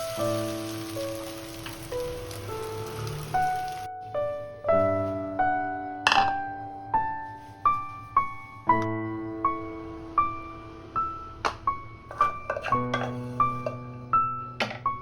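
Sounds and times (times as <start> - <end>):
rain-like hiss: 0.0 - 3.9
gentle piano music: 0.0 - 15.0.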